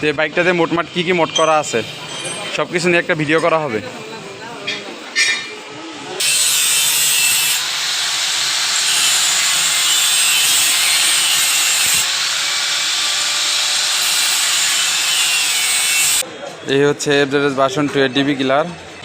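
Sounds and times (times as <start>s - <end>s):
angle grinder cutting steel pipe: 6.2s - 16.2s.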